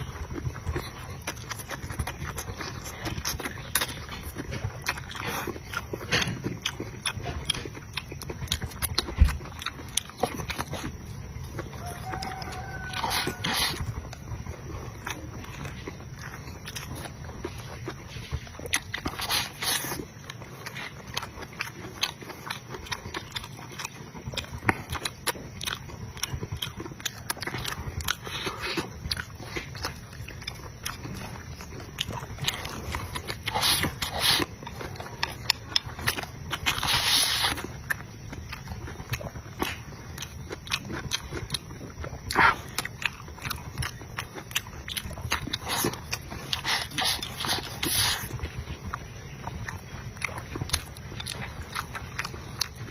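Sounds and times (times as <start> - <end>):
person chewing food: 0.0 - 52.9.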